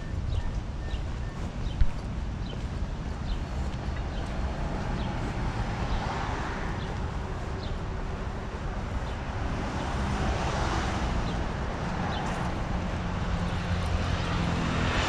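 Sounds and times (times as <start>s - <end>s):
rumble of passing vehicles: 0.0s - 15.0s.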